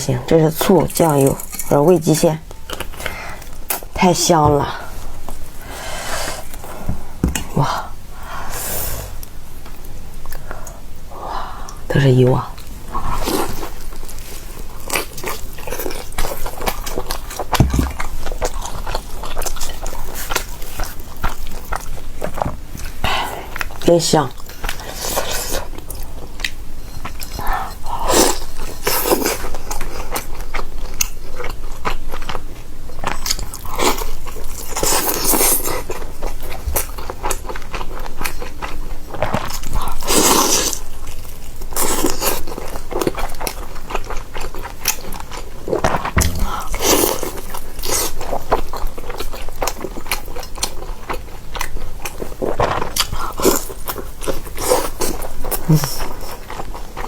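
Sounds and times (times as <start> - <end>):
crunchy chewing: 12.6 - 57.0.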